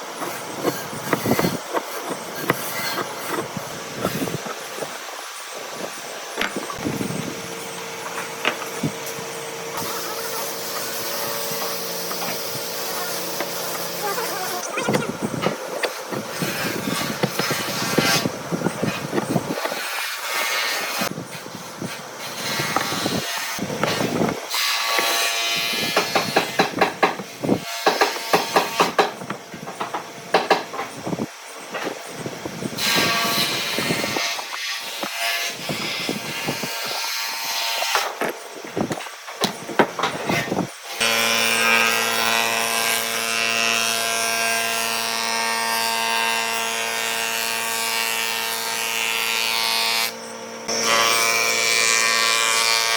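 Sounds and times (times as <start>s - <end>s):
tools knocking on wood: 6.4s - 6.9s, 26.0s - 31.0s.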